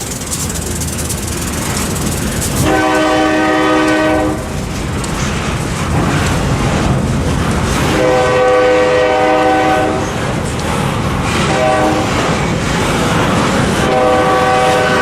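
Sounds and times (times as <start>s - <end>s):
diesel locomotives rumbling: 0.0s - 15.0s
locomotive air horn blast: 2.6s - 4.5s, 7.9s - 10.2s, 11.4s - 12.2s, 13.8s - 15.0s.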